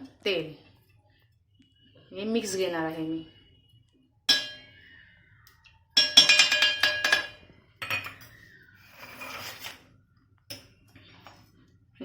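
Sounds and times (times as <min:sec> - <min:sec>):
metal utensils clinking on pot: 0:04.3 - 0:04.8, 0:06.0 - 0:09.8.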